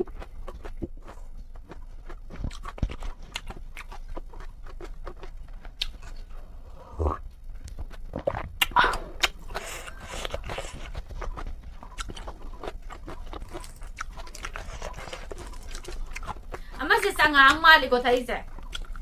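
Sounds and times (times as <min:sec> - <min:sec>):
chewing and smacking: 0:00.0 - 0:19.0.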